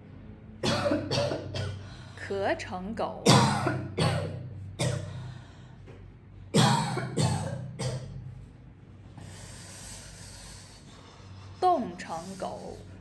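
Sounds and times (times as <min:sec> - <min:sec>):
person coughing: 0:00.6 - 0:01.9, 0:03.2 - 0:05.2, 0:06.6 - 0:08.2.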